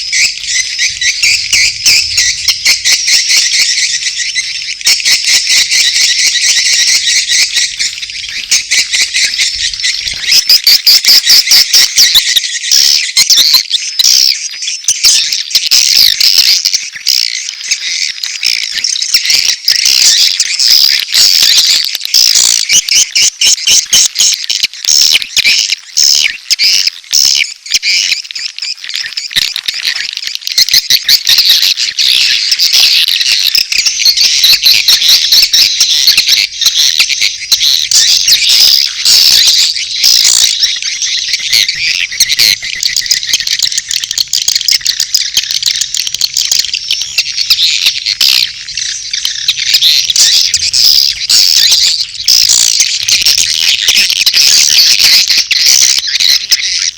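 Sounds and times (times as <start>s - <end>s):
swiftlet chirps and clicks: 30.9s - 56.9s.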